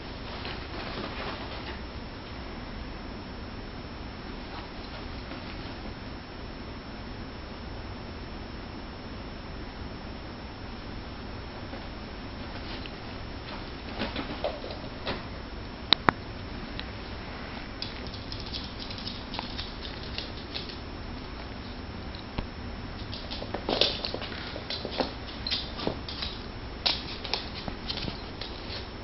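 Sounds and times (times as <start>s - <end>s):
paw and claw scuffles: 0.2s - 1.8s, 4.4s - 5.9s, 23.0s - 29.0s.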